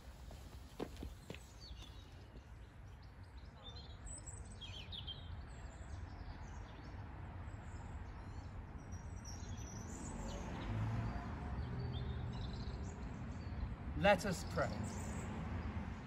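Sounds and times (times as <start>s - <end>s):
birds chirping: 0.0s - 3.4s.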